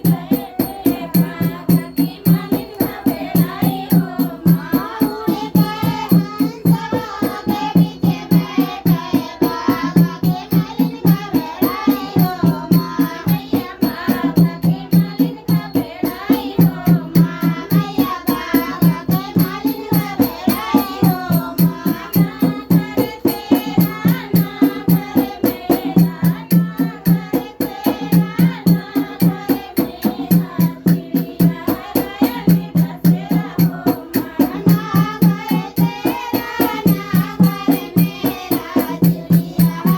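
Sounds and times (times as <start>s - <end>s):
hand drum beat: 0.0s - 39.9s.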